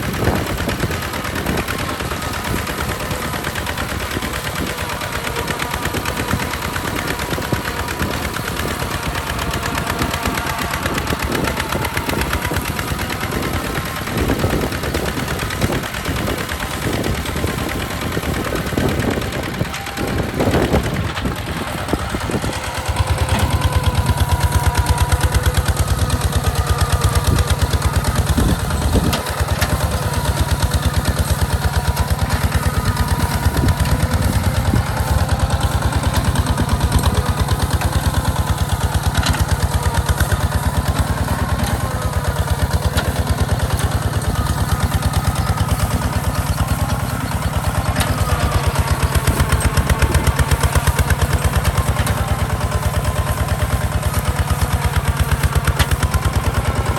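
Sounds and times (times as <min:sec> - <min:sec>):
tractor diesel engine chugging: 0:00.0 - 0:56.9.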